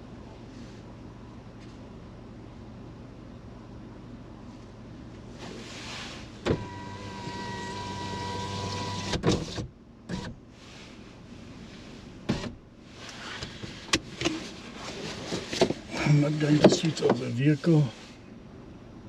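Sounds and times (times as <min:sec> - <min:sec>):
electric window motor whining: 0:06.4 - 0:10.4.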